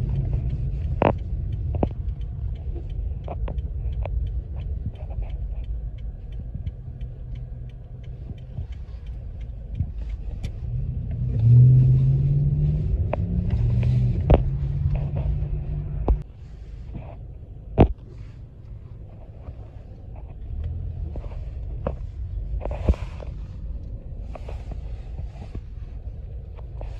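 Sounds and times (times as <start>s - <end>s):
heavy vehicle engine drone: 0.0s - 26.9s
road traffic rumbling: 0.0s - 26.9s.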